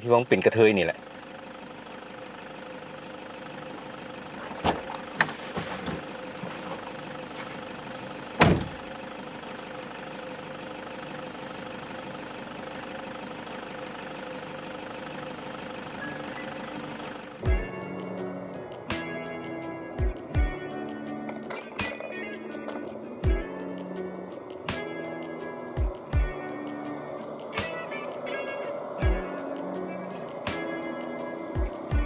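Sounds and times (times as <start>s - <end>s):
car engine hum: 0.0s - 32.0s
loud thump: 8.4s - 8.8s.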